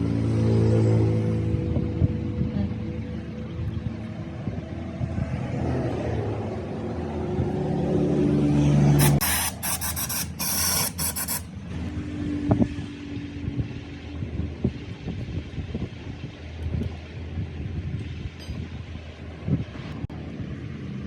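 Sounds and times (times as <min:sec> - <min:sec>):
hiss in bursts: 0:09.0 - 0:11.4.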